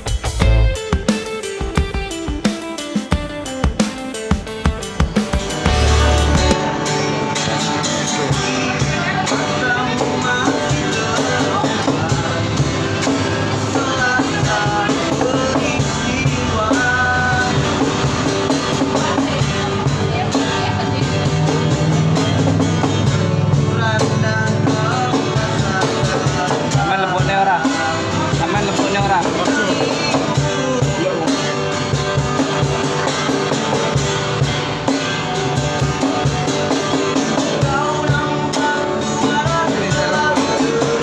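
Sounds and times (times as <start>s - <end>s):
instrumental backing: 0.0s - 41.0s
person singing: 5.6s - 22.1s, 23.4s - 31.6s, 37.2s - 41.0s.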